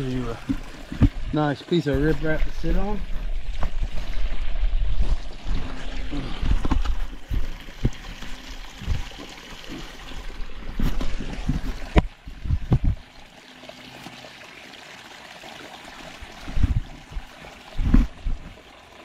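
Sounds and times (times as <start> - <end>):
water trickling: 0.0 - 19.0
low thumps: 10.8 - 13.1, 16.5 - 18.6.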